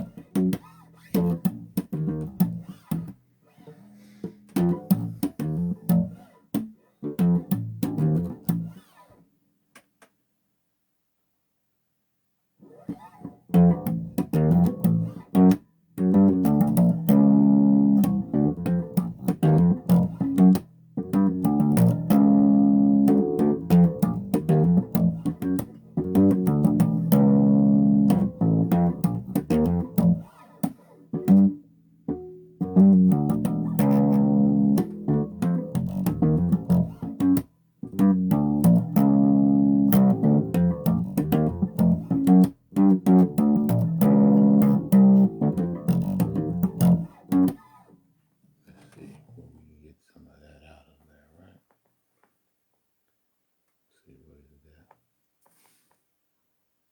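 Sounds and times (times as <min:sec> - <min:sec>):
electric bass guitar notes: 0:00.0 - 0:03.2, 0:04.2 - 0:06.2, 0:07.0 - 0:08.8, 0:13.2 - 0:30.4, 0:31.1 - 0:47.7.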